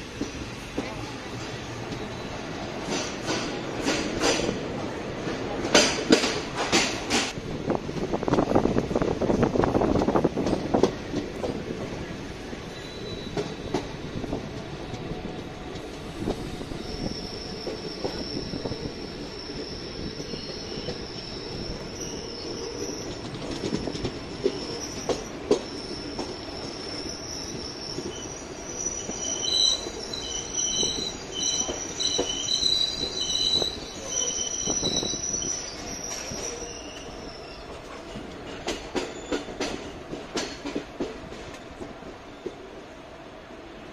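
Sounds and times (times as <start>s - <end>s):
train wheels rumbling on rails: 0.0s - 43.0s
high metal-on-metal squeal: 25.8s - 37.6s.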